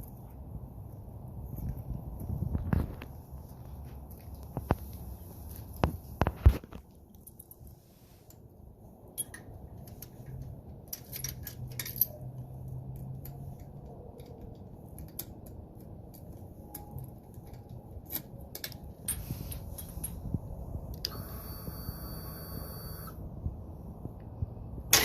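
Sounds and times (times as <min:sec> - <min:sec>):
metallic clicks and jingles: 0:09.2 - 0:20.6.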